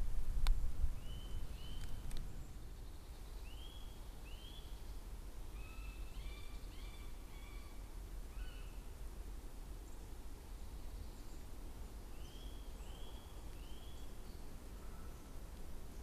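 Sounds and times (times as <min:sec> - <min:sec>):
birds whistling calls: 0:12.2 - 0:14.2.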